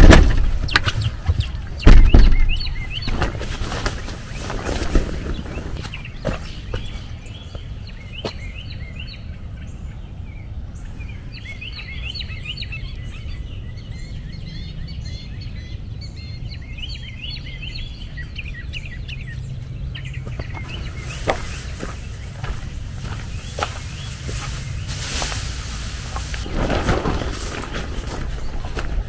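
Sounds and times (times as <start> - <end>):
birds chirping: 0.0 - 29.0
steady low rumble: 17.7 - 29.0.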